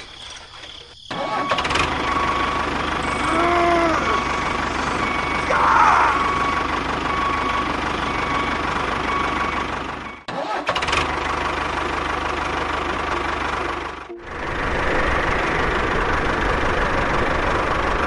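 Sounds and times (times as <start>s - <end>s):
motor running: 1.7s - 7.6s.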